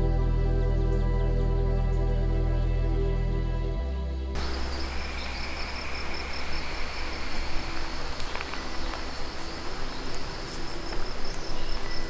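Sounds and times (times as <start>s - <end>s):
background hiss: 4.4s - 12.0s
insects trilling: 4.4s - 12.0s
thin insect tone: 4.4s - 12.0s.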